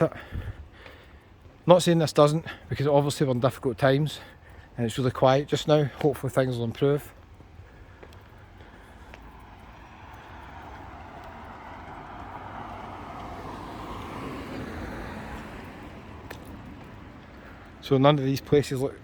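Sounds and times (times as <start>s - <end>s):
car driving past: 8.9s - 17.8s.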